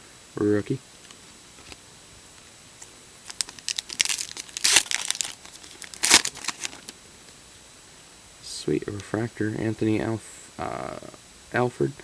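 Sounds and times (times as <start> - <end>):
foil wrapper crinkling and tearing: 3.2 - 7.0.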